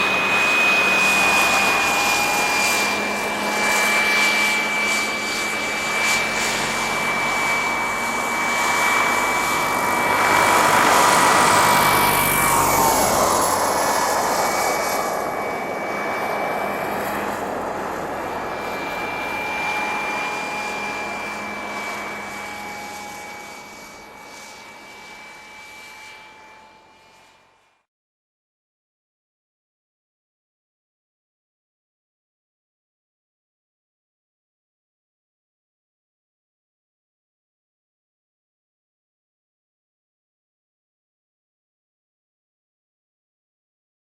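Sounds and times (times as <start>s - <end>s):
rotors rushing: 0.0s - 22.7s
model helicopter turbine whining: 0.0s - 27.9s.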